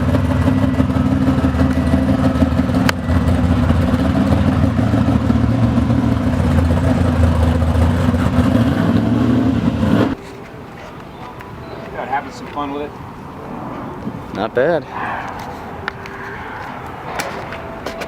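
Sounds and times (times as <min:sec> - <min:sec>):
car engine running loud: 0:00.0 - 0:10.2.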